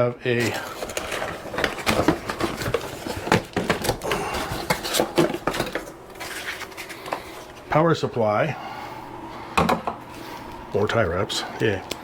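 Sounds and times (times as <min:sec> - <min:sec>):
packaging rustling: 0:00.3 - 0:07.7.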